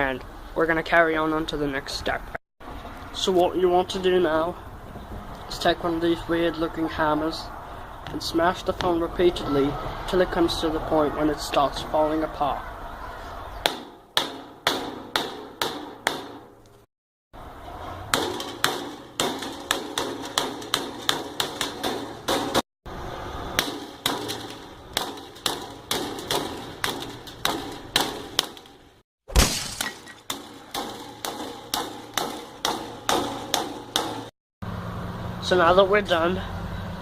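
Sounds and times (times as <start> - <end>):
hammer smashing a phone: 29.3 - 33.6.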